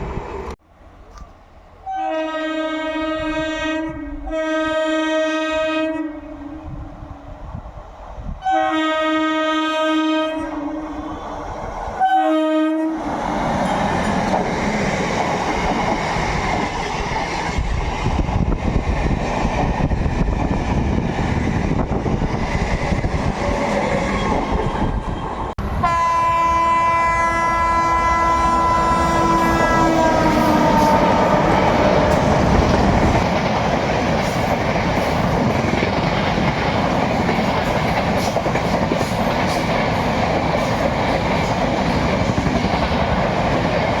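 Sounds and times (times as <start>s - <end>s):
locomotive horn long blast: 1.8s - 6.8s, 8.4s - 11.2s, 12.0s - 13.1s, 25.6s - 32.8s
train horn blasts: 1.8s - 6.8s, 8.4s - 11.2s, 12.0s - 13.1s, 25.6s - 33.0s
train wheels clattering on rail joints: 13.5s - 24.9s, 30.2s - 44.0s.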